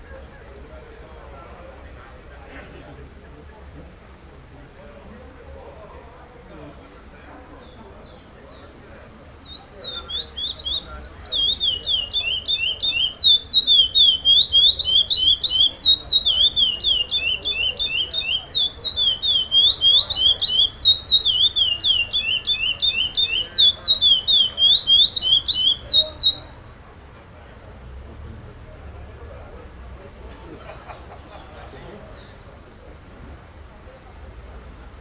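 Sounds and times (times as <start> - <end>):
finch singing whistled notes: 7.2 - 28.0.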